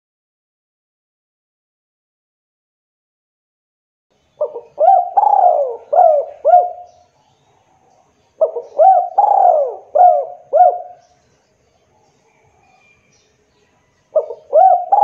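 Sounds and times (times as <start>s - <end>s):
dove cooing: 4.4s - 7.0s, 7.7s - 11.1s, 14.1s - 15.0s.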